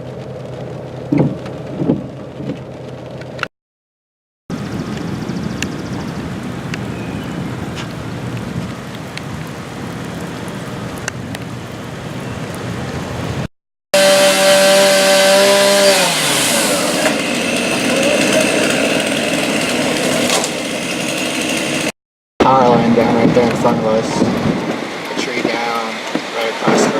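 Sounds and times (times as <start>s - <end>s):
small high-revving engine: 14.0s - 21.9s
steady rushing noise: 22.5s - 26.9s.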